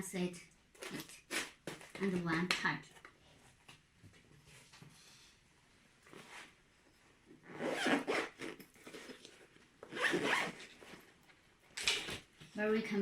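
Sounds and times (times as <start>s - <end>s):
zipper being pulled: 7.4s - 11.0s.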